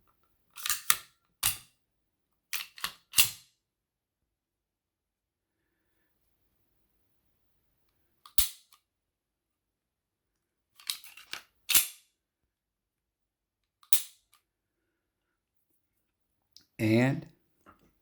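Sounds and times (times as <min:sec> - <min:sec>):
pistol slide clacking: 0:00.6 - 0:01.7, 0:02.6 - 0:03.4, 0:08.3 - 0:08.8, 0:10.8 - 0:12.0, 0:13.8 - 0:14.2.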